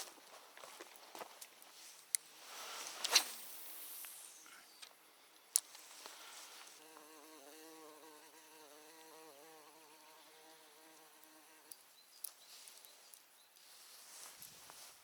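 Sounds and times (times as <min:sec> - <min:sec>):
flying insect buzzing: 0:06.6 - 0:11.8.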